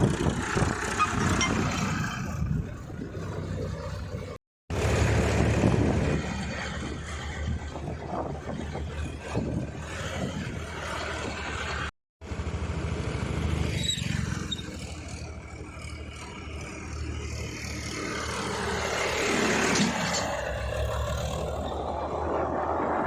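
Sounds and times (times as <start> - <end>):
tractor diesel engine rumbling: 0.0 - 23.0.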